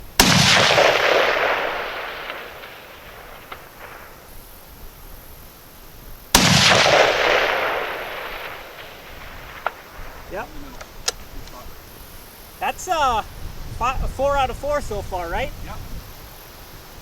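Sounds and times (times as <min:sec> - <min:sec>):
rifle shots with rolling echo: 0:00.0 - 0:04.7, 0:06.3 - 0:11.4.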